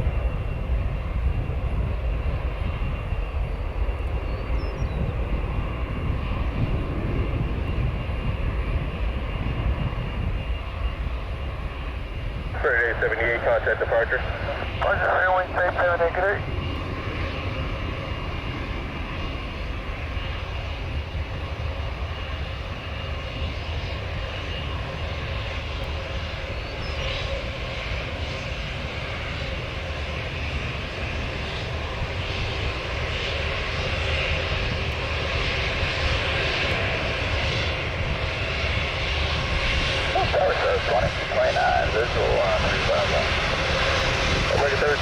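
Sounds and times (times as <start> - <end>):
wind rumble on microphone: 0.0 - 27.6, 30.2 - 45.0
jet airliner engines: 0.0 - 45.0.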